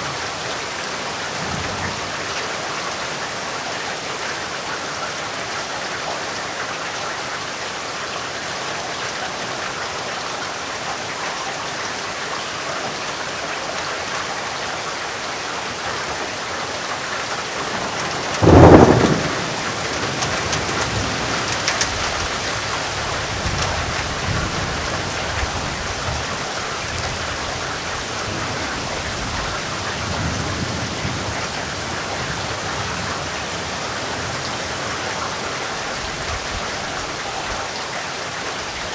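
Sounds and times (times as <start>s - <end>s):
heavy rainfall: 0.0s - 38.9s
thunderclap and rumbling: 17.6s - 26.4s.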